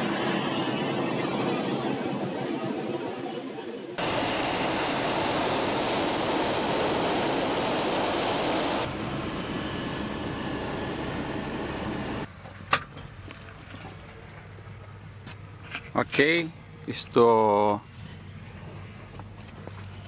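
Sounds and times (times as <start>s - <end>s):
helicopter rushing noise: 4.0s - 12.3s
low hum: 4.0s - 12.3s.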